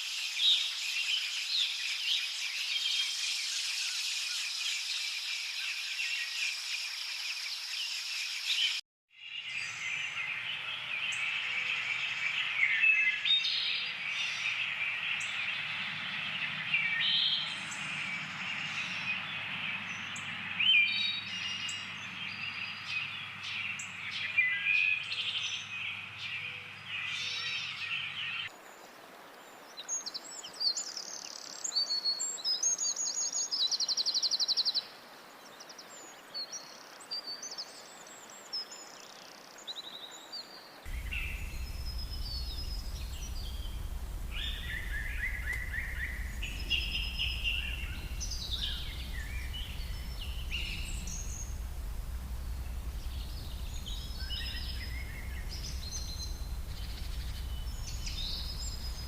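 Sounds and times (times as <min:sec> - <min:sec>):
birds chirping and trilling: 0:40.3 - 0:59.0
steady low rumble: 0:40.9 - 0:59.0.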